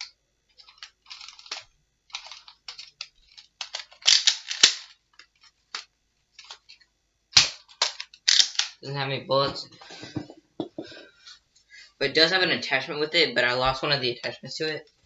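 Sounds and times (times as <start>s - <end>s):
plastic toy blaster clicking: 0.0s - 5.0s, 7.4s - 8.8s
sharp plastic snaps: 0.0s - 8.8s.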